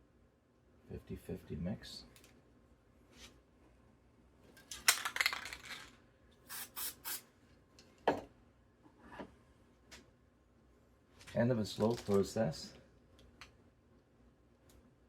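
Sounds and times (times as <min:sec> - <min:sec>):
aerosol spray paint hissing: 0:06.5 - 0:07.2.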